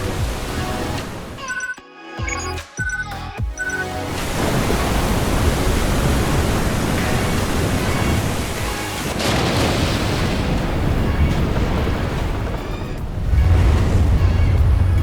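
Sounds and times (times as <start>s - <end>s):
music: 0.0s - 4.4s, 5.4s - 9.3s, 10.4s - 15.0s
loud steady rushing noise: 4.1s - 9.3s, 10.4s - 15.0s.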